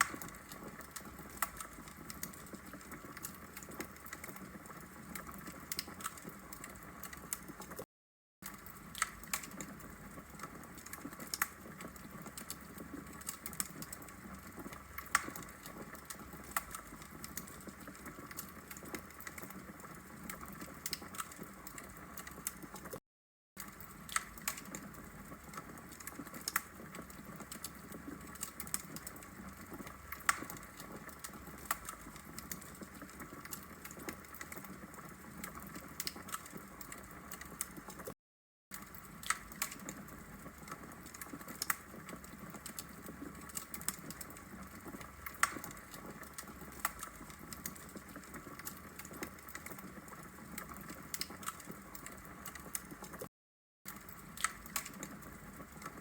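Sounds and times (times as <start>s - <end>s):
wood fire crackling and popping: 0.0s - 7.8s, 8.4s - 23.0s, 23.6s - 53.3s, 53.9s - 56.0s.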